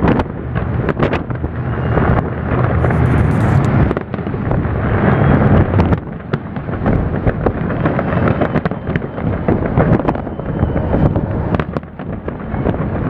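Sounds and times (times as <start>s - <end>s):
fireworks booming: 0.0s - 13.0s
fireworks crackling pops: 0.0s - 13.0s
low rumble: 0.3s - 6.2s, 10.2s - 12.3s.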